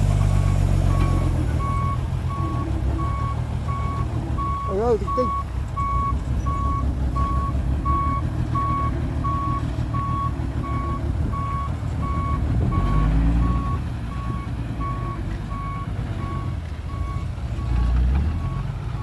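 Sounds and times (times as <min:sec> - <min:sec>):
diesel engine rumble: 0:00.0 - 0:19.0
reversing alarm beeping: 0:00.2 - 0:17.8.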